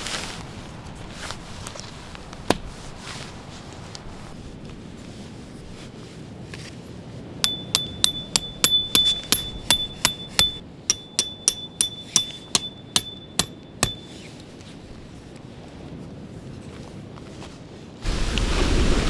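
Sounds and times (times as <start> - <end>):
hammer striking metal: 7.5 - 14.2.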